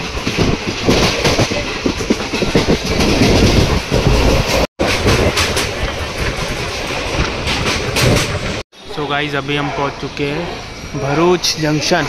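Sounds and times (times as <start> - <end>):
train wheels clattering on rails: 0.0 - 8.6.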